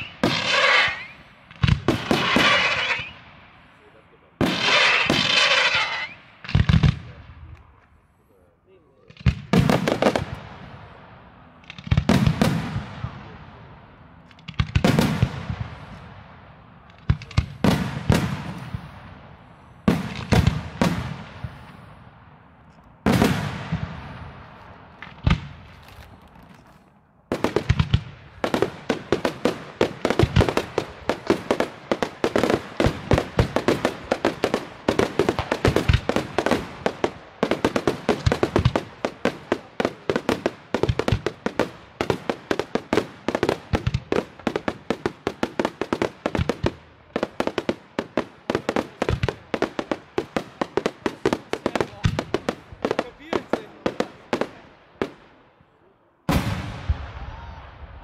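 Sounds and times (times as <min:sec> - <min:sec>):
firework shell bursts with crackle: 0:00.0 - 0:03.3, 0:04.4 - 0:06.9
rapid string of firework bangs: 0:00.0 - 0:03.4, 0:04.4 - 0:07.2, 0:09.1 - 0:11.0, 0:11.6 - 0:13.6, 0:14.3 - 0:22.4, 0:23.0 - 0:25.8, 0:27.3 - 0:55.4.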